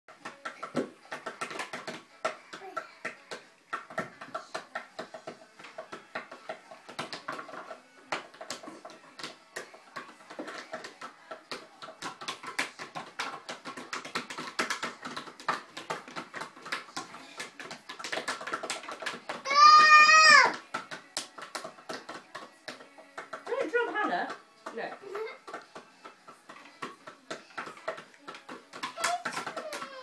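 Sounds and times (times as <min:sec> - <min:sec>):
child drumming light taps: 0:10.3 - 0:20.7, 0:26.4 - 0:30.0.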